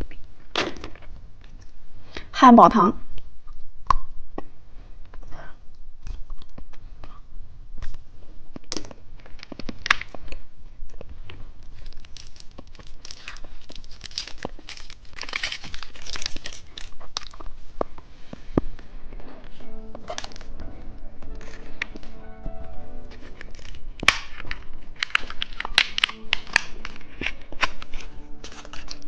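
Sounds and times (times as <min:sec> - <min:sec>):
plastic wrappers crinkling: 0:08.6 - 0:22.4, 0:23.1 - 0:29.0.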